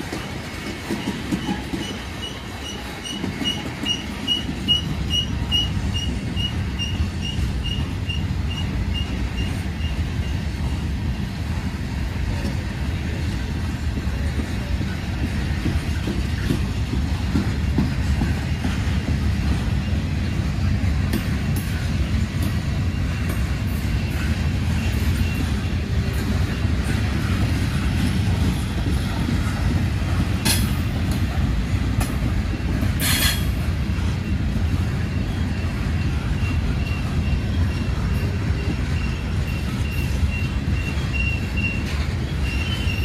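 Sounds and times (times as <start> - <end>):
train wheels rumbling on rail: 0.0 - 43.0
high wheel squeal: 35.0 - 43.0.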